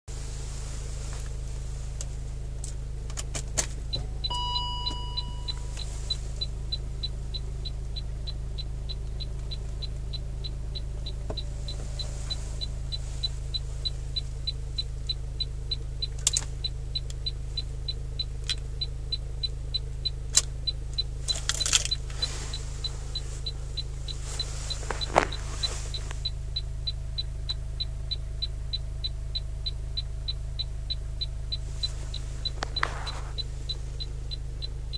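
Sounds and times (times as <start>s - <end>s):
steady low hum: 0.1s - 34.9s
short chime-like tone: 4.1s - 5.7s.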